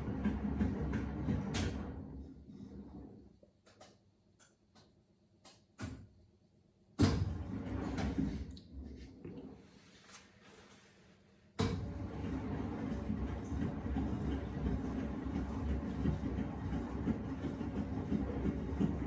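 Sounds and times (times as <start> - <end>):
washing machine drum churning: 0.0 - 3.0, 7.0 - 8.5, 11.6 - 19.0.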